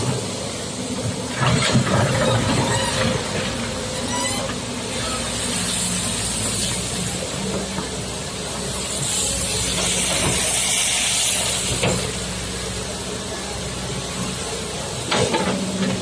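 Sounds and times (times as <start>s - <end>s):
excavator diesel engine: 0.0s - 16.0s
hiss: 0.0s - 16.0s.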